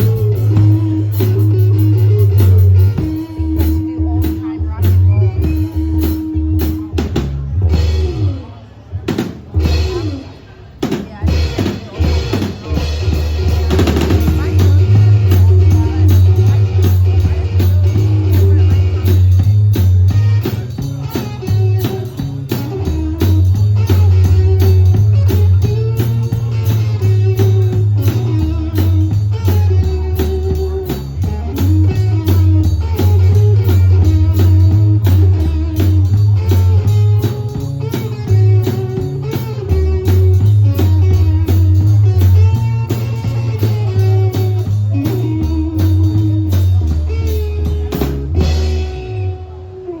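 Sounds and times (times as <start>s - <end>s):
drum kit beat: 0.0s - 49.9s
bass line: 0.0s - 50.0s
blues guitar: 0.0s - 50.0s.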